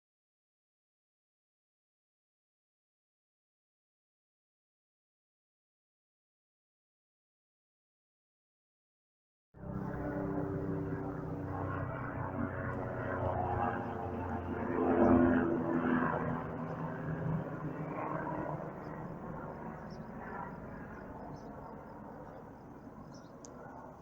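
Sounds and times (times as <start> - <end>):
helicopter engine and rotor: 9.6 - 24.0.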